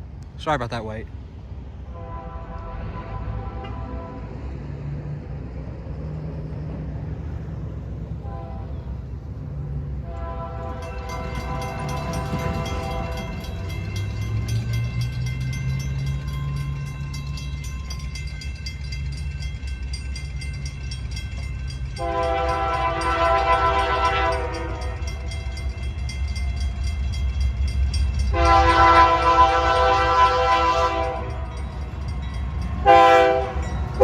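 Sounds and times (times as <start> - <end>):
freight train rumble: 0.0 - 34.0
locomotive air horn: 1.9 - 4.5, 8.2 - 9.0, 10.0 - 13.8, 22.0 - 25.2, 28.3 - 31.5, 32.8 - 33.6.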